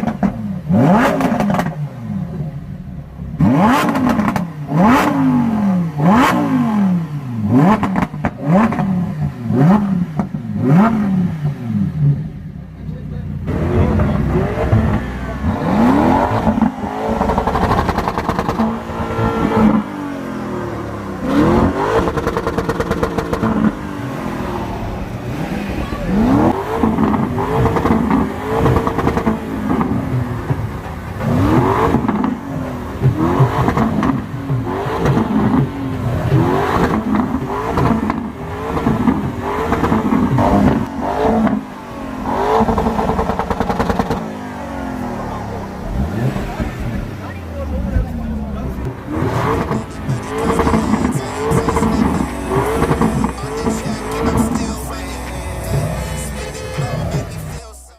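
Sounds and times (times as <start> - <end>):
car engines revving: 0.0 - 57.9
exhaust crackling: 0.0 - 57.9.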